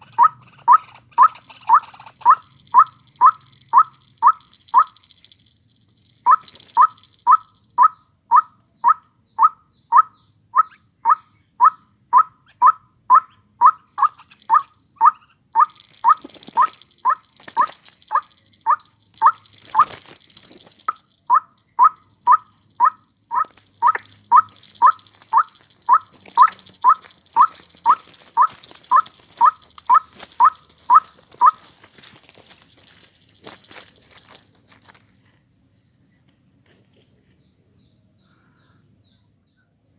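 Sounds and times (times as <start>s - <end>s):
waterhen repeated call notes: 0.0s - 5.0s, 6.2s - 8.5s, 12.2s - 31.7s
high insect buzzing: 1.2s - 7.7s, 13.9s - 34.5s.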